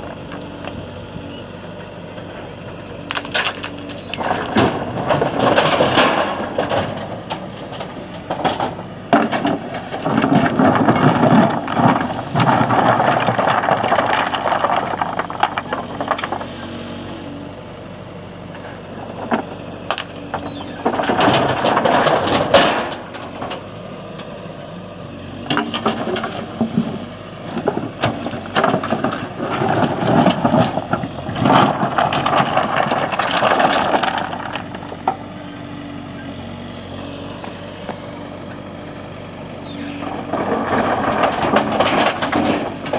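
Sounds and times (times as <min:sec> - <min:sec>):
diesel engine running: 0:00.0 - 0:42.9
rocks rattling and crashing: 0:03.0 - 0:16.9, 0:18.6 - 0:23.8, 0:25.4 - 0:35.4, 0:38.6 - 0:42.9.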